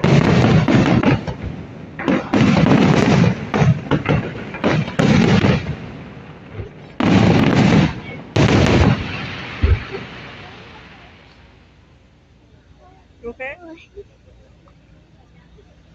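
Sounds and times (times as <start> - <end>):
fireworks bangs and crackles: 0.0 - 11.8.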